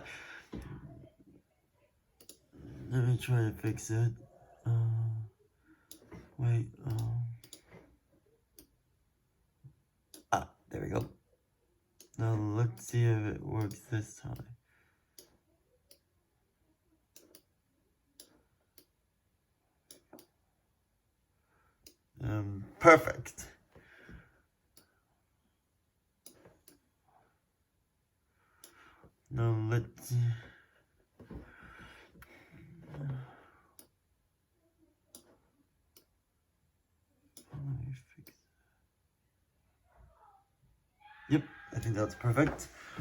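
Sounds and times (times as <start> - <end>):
computer mouse clicks: 2.2 - 2.4, 6.8 - 7.7.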